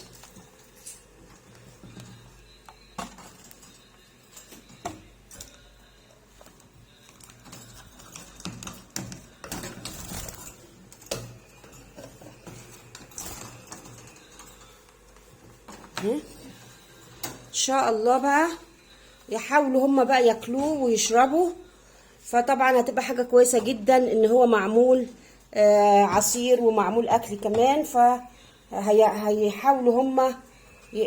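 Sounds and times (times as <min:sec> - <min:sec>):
feed cups clicking and knocking: 0:07.1 - 0:14.8.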